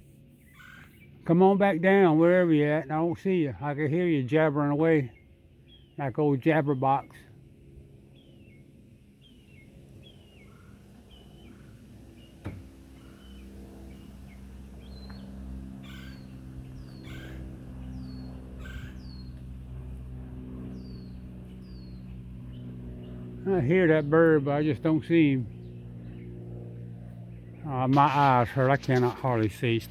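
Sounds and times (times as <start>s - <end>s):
steady engine hum: 0.0s - 29.9s
woodpecker calling short falling notes: 15.8s - 16.2s, 17.0s - 17.4s, 18.6s - 19.1s.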